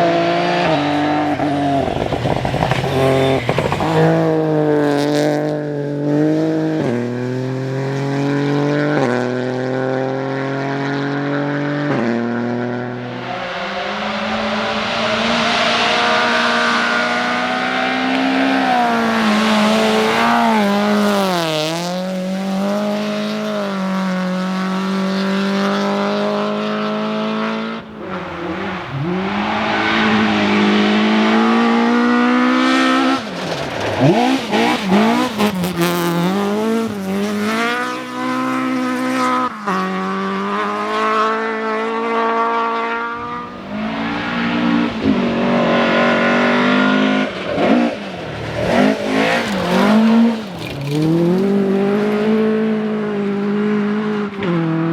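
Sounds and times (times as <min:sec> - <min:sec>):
rally car engines revving high: 0:00.0 - 0:54.9.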